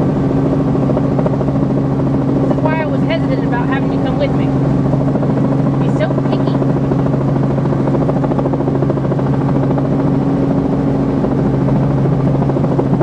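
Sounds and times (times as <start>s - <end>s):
helicopter engine and rotor drone: 0.0s - 13.0s.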